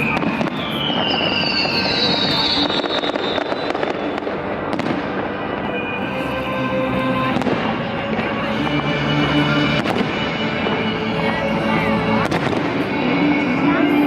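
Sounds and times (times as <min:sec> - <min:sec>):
fireworks bangs: 0:00.0 - 0:06.0, 0:07.2 - 0:11.4, 0:12.2 - 0:13.8
fireworks crackle: 0:00.0 - 0:11.4, 0:12.2 - 0:14.0
music playing: 0:03.4 - 0:14.0.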